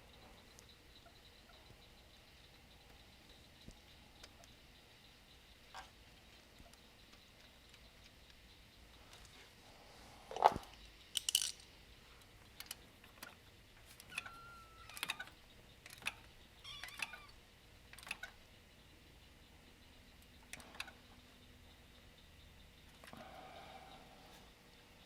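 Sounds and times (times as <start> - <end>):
metal tools clinking: 10.4 - 11.7.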